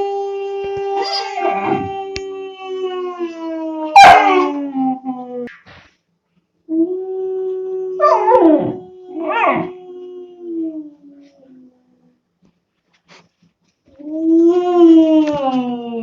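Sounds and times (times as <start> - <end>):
puppy howling: 0.0 - 5.5, 6.7 - 11.6, 14.0 - 16.0.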